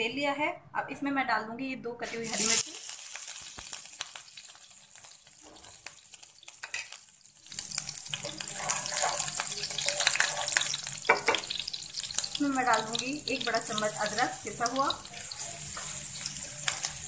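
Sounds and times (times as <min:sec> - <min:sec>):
chillies sizzling in hot oil: 0:02.0 - 0:17.0
wooden spatula stirring: 0:07.5 - 0:12.3, 0:12.9 - 0:17.0.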